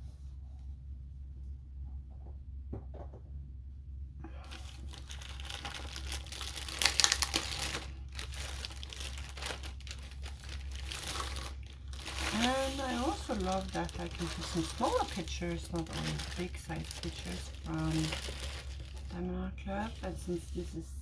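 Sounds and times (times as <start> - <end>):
packaging crinkling: 4.4 - 20.6.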